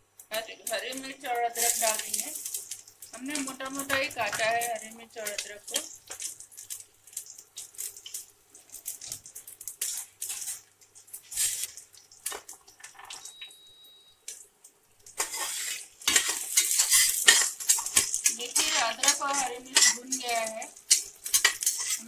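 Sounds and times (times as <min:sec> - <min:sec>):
spices sizzling and popping in oil: 0:00.0 - 0:22.0
spoon scraping in a pot: 0:15.2 - 0:22.0.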